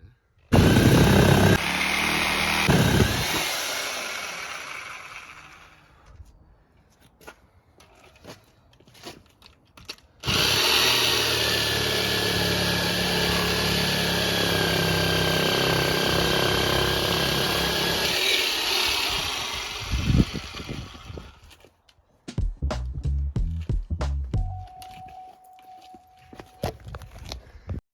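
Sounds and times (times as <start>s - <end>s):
power tool cutting with whine: 0.6s - 5.8s, 10.2s - 21.4s.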